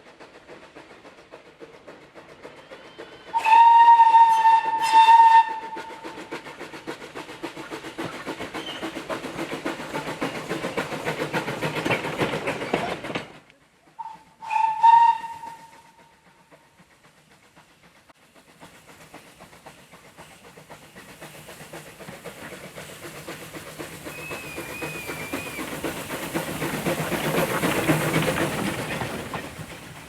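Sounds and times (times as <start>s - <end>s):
locomotive exhaust beats: 0.1s - 30.0s
steam locomotive whistle: 2.6s - 6.2s, 14.0s - 16.6s, 24.1s - 25.7s.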